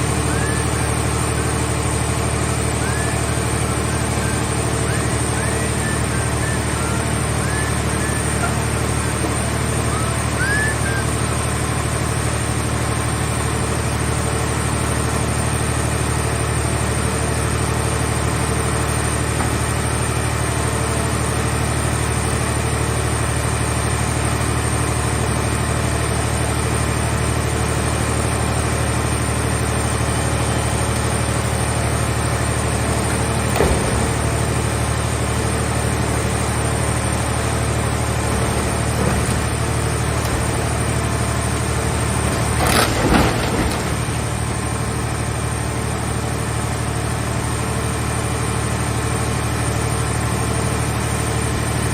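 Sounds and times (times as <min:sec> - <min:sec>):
engine running steadily: 0:00.0 - 0:51.9.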